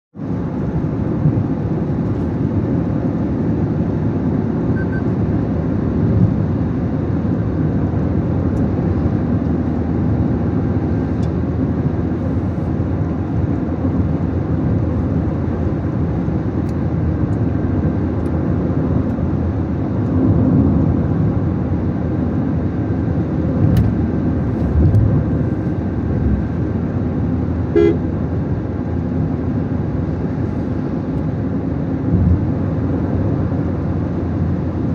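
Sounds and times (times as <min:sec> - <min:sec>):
car engine and road noise: 0:00.1 - 0:34.9
car horn toot: 0:27.7 - 0:28.1.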